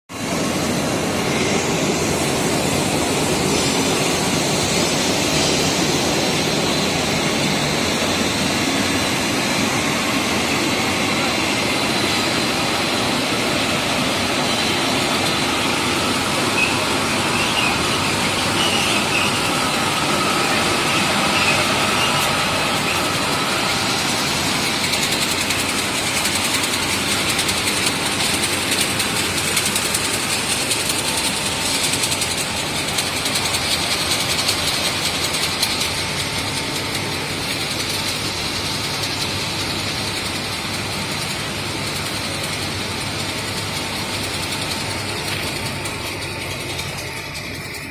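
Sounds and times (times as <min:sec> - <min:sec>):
high-pitched whine: 0:00.1 - 0:47.9
industrial machine running: 0:00.1 - 0:47.9.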